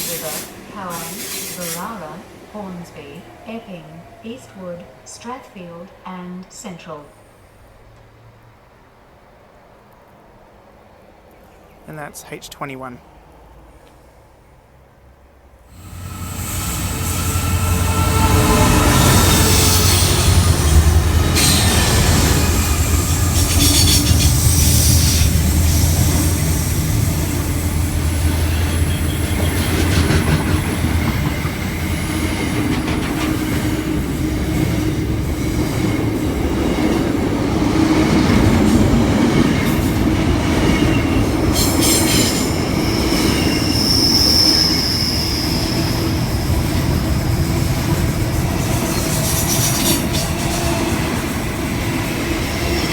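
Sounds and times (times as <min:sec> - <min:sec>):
electric train rumbling: 0:00.0 - 0:11.2, 0:15.5 - 0:52.9
high wheel squeal: 0:15.8 - 0:33.4, 0:40.6 - 0:47.8
train wheel clicks: 0:15.9 - 0:34.1.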